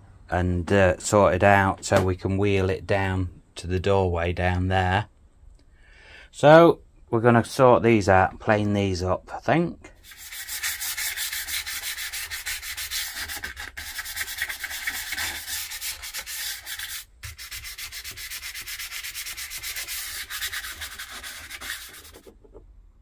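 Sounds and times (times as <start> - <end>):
hand scrubbing a surface: 10.0 - 22.4.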